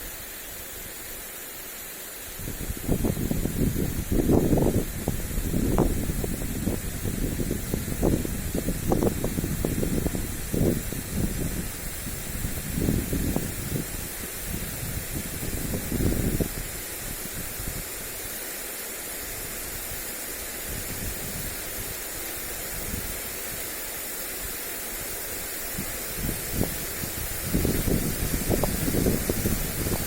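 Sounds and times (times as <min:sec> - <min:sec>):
lawn sprinkler spraying: 0:00.0 - 0:30.0
wind buffeting microphone: 0:02.4 - 0:18.2, 0:25.7 - 0:30.0.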